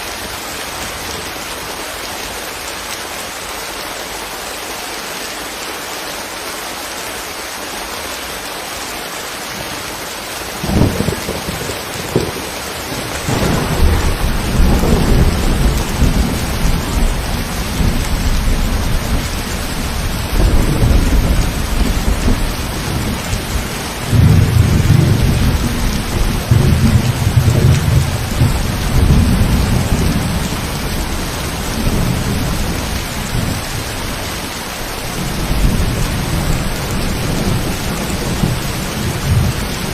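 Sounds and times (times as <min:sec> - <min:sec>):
steady rain falling: 0:00.0 - 0:39.9
thunder crack and rumble: 0:10.6 - 0:34.1.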